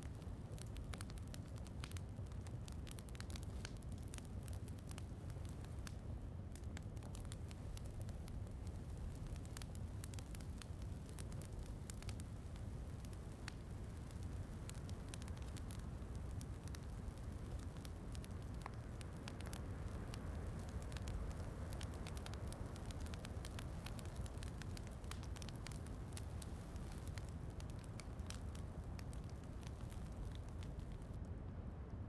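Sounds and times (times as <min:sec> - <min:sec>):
wood fire crackling: 0:00.0 - 0:31.7
rain rumble: 0:07.4 - 0:31.2.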